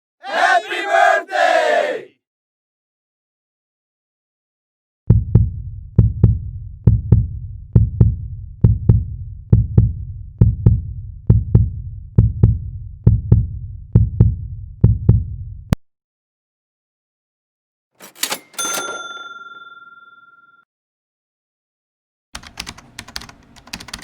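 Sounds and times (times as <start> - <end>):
heartbeat thumps: 5.1 - 15.8.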